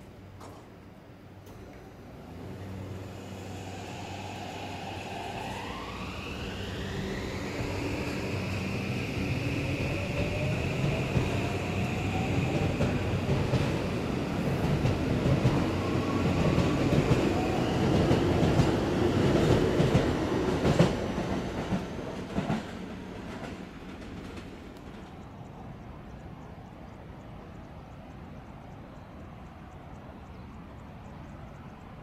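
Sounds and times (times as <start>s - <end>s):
electric train motors whining: 1.4s - 20.0s.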